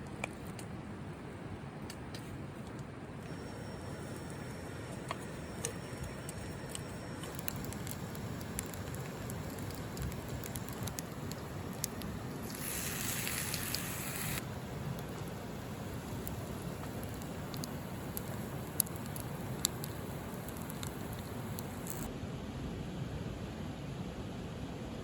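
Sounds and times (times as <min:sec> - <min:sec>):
bright hiss: 0:03.3 - 0:22.1
wood fire crackling: 0:03.3 - 0:22.1.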